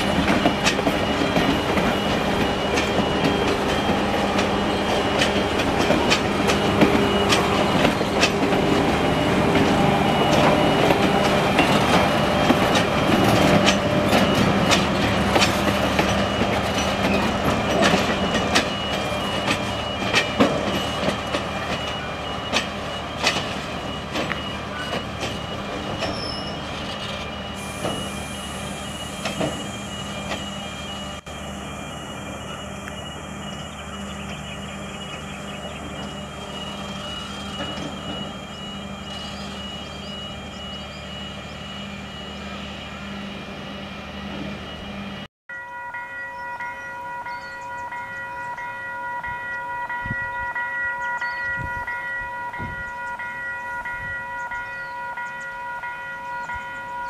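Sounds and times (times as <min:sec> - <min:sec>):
train wheels clicking on rails: 0:00.0 - 0:30.7, 0:32.4 - 0:40.8
train wheel squeal: 0:00.0 - 0:45.3, 0:46.2 - 0:57.0.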